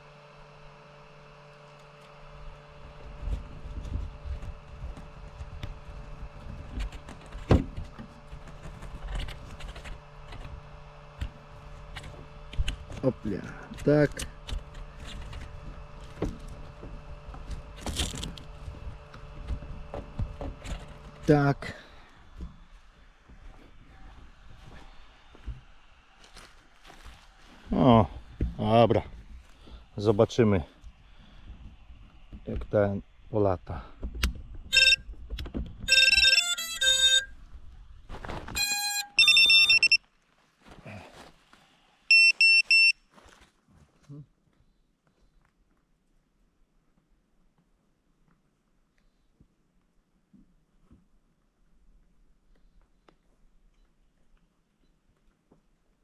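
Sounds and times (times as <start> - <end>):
electronic beep tones: 34.8 - 35.0, 35.9 - 37.3, 38.9 - 40.0, 42.1 - 42.9.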